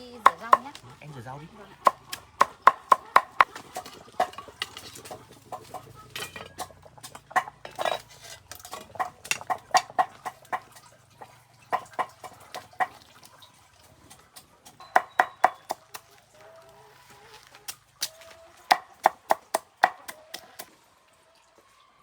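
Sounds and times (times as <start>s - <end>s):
chickens clucking: 0.0s - 20.7s
knife chopping on wooden board: 0.2s - 0.8s, 1.8s - 10.7s, 14.8s - 16.0s, 18.7s - 20.7s
dishes clattering: 1.9s - 10.8s
knife scraping board: 7.4s - 9.4s.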